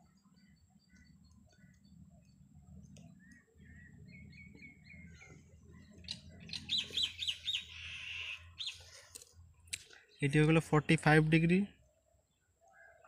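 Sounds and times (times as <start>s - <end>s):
buzzy bird chatter: 0.0s - 9.2s
small birds chirping: 0.0s - 13.0s.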